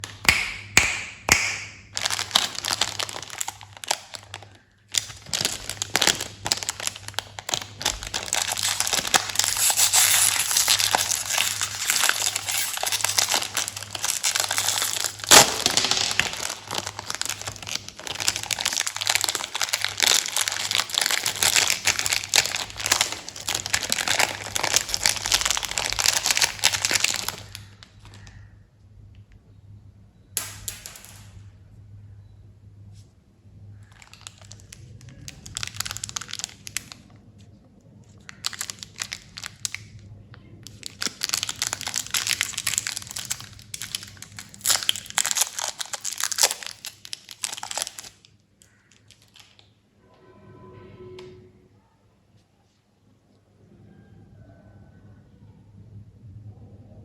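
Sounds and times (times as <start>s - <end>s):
plastic candy wrappers crinkling: 0.9s - 28.5s, 33.8s - 49.8s.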